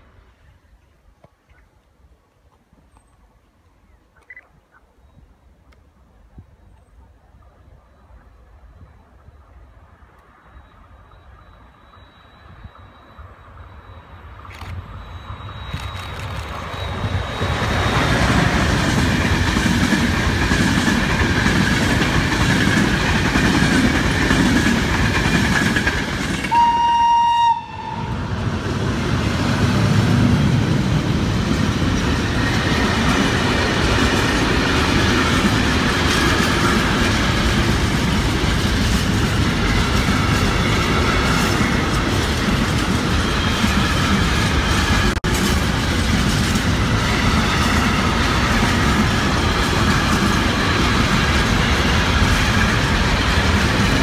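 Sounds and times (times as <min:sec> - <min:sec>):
train wheels clattering: 0:15.6 - 0:26.6
train horn blast: 0:26.4 - 0:28.3.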